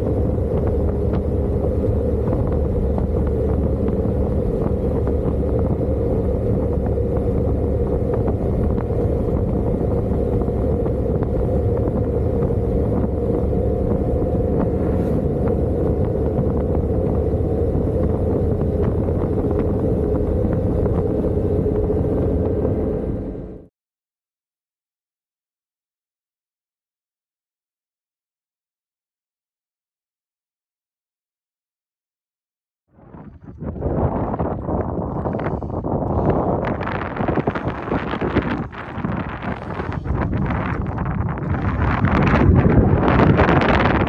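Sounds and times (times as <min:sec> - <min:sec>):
motorcycle engine drone: 0:00.0 - 0:23.7, 0:33.0 - 0:44.0
wind rushing over microphone: 0:00.0 - 0:23.7, 0:32.9 - 0:44.0.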